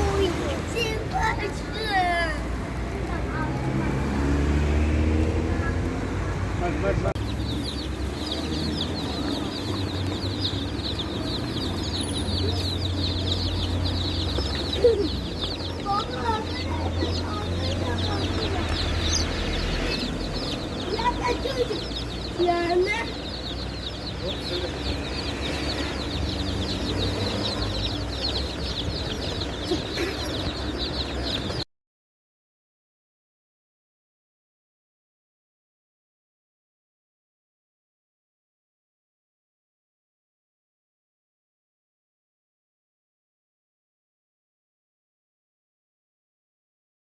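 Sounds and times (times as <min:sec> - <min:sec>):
small birds chirping: 0:00.0 - 0:31.7.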